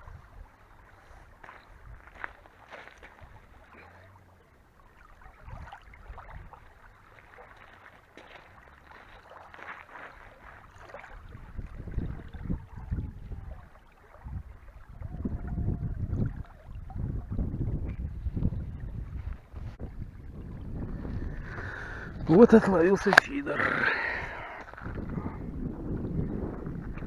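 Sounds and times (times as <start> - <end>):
wind buffeting microphone: 0.0 - 2.4, 5.3 - 6.8, 10.7 - 27.0.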